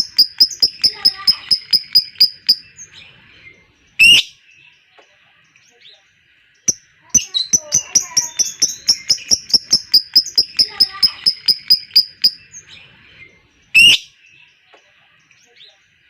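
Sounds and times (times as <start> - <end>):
lovebird chattering: 0.0 - 2.9, 6.7 - 12.6.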